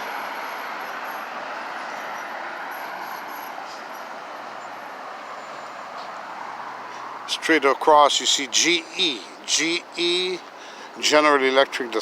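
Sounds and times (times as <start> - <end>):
hiss of passing vehicles: 0.0 - 7.4, 10.4 - 11.1.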